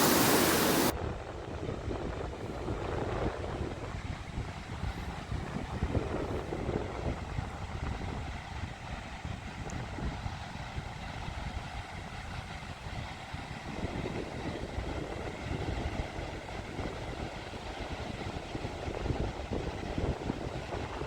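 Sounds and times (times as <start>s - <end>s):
surf washing on beach: 0.0s - 0.9s
wind buffeting microphone: 0.0s - 0.9s.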